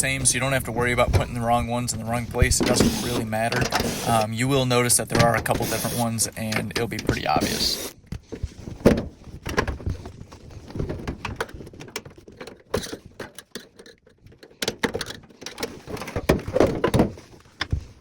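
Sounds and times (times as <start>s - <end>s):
metal panels knocking and rattling: 0.3s - 4.2s, 14.5s - 18.0s.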